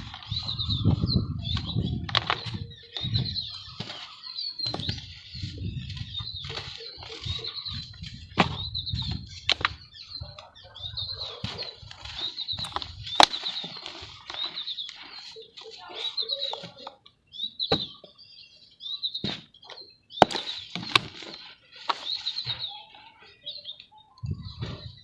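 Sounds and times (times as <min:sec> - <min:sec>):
dirt crumbling by hand: 0:00.0 - 0:10.5, 0:11.1 - 0:17.0, 0:19.2 - 0:22.6.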